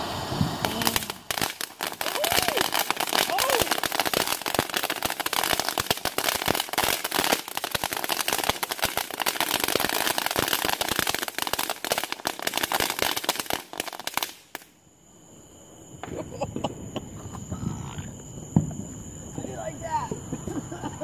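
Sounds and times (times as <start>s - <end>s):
fireworks crackling: 0.0s - 14.8s.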